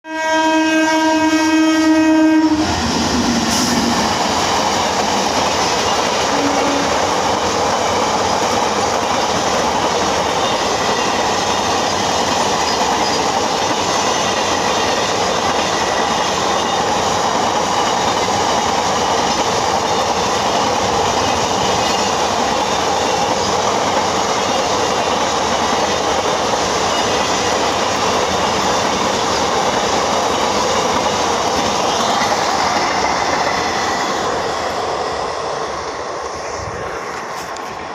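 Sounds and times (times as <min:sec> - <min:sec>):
locomotive horn: 0:00.1 - 0:02.7, 0:06.3 - 0:07.0.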